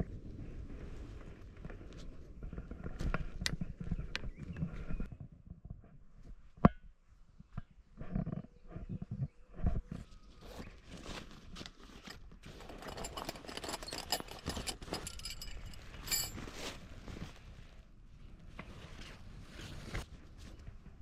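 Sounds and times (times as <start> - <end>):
fabric rustling and scuffing: 16.0 - 17.8.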